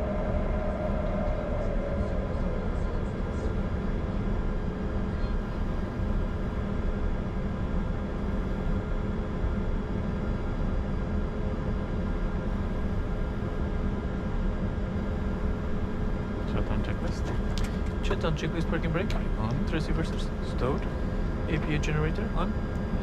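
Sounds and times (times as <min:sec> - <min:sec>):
jet engines idling: 0:00.0 - 0:23.0.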